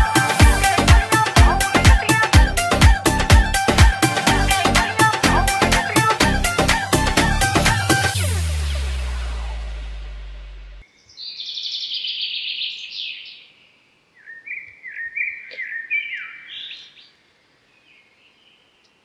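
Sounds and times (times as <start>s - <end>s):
birds chirping and singing: 0.0s - 2.7s, 10.9s - 13.6s, 14.2s - 17.2s
electronic dance music: 0.0s - 10.8s.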